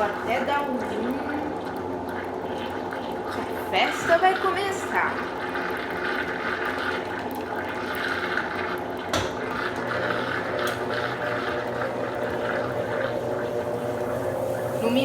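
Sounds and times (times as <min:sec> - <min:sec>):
washing machine spinning: 0:00.0 - 0:15.0
water rushing out draining: 0:00.0 - 0:15.0
low steady hum: 0:08.8 - 0:15.0.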